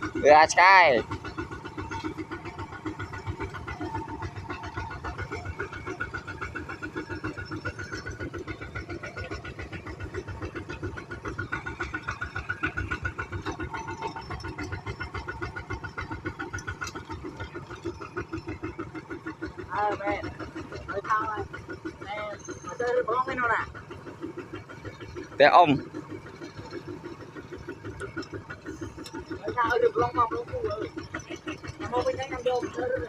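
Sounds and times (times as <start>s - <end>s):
diesel tractor engine putting: 0.0s - 33.0s.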